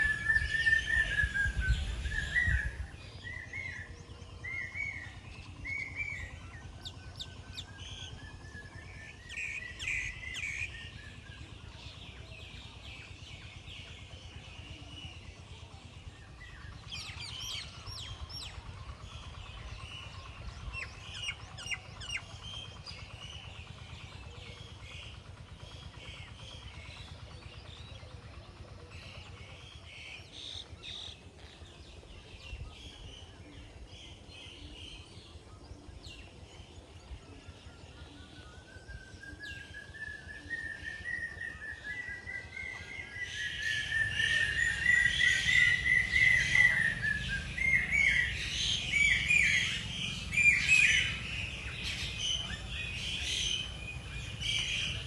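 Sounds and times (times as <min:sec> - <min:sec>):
steady low rumble: 0:00.0 - 0:10.3, 0:45.7 - 0:55.0
birds chirping and calling: 0:00.0 - 0:55.0.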